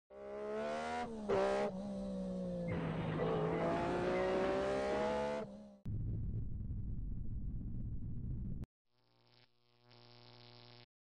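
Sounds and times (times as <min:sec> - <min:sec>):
car engine revving: 0:00.1 - 0:05.9.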